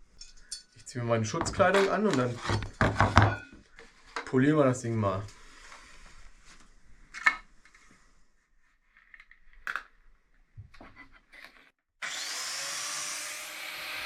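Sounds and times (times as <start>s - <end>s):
angle grinder grinding steel: 12.0s - 14.0s.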